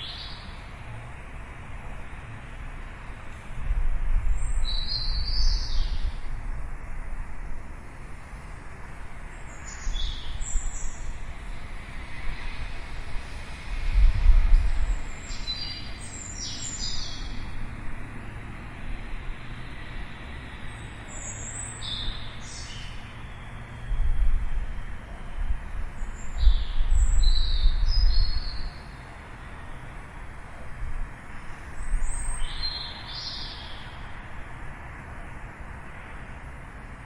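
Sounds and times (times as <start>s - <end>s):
outdoor background hiss: 0.0s - 37.0s
small birds chirping: 4.4s - 6.3s, 14.8s - 17.6s, 20.7s - 23.5s, 25.9s - 28.9s, 31.7s - 34.2s.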